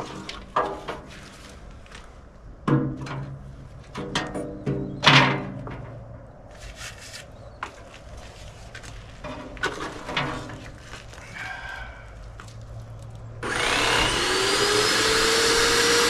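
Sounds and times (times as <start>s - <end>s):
electric paint sprayer buzzing: 13.4s - 16.0s.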